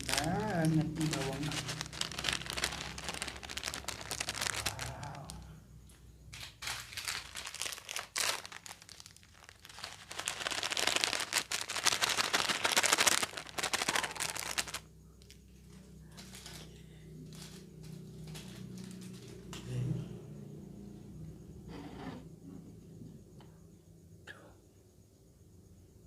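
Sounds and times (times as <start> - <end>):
plastic sachets crinkling: 0.0 - 5.4, 6.4 - 15.3, 17.3 - 17.6.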